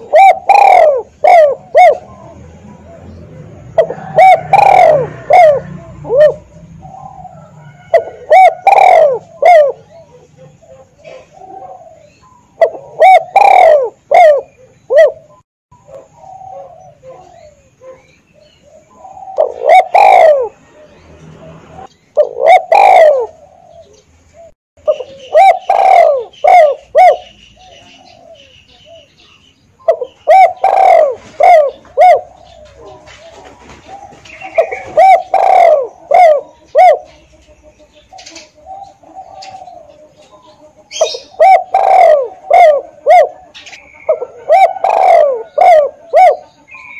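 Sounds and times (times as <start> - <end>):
dove cooing: 0.0 - 46.9.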